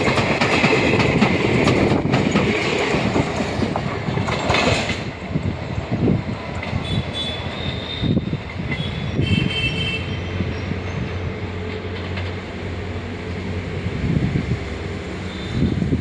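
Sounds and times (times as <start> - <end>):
train wheels clacking on rails: 0.0 - 16.0
faint high wheel squeal: 6.8 - 11.2.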